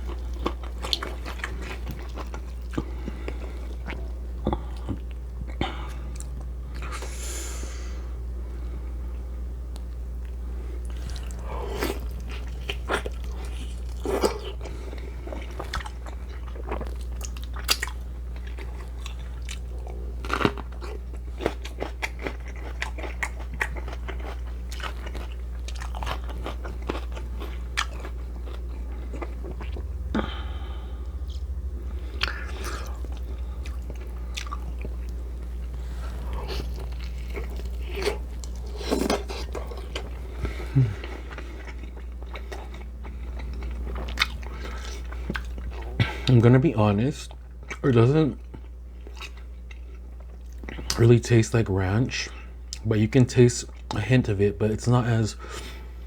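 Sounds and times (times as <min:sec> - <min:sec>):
person chewing crunchy food: 0:00.0 - 0:07.2, 0:09.8 - 0:46.7, 0:47.3 - 0:51.2
steady low hum: 0:00.0 - 0:56.0.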